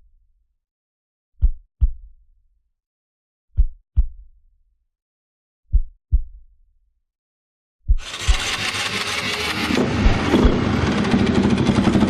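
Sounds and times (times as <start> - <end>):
heartbeat thumps: 1.4 - 2.1, 3.6 - 4.3, 5.7 - 6.5, 9.8 - 10.9.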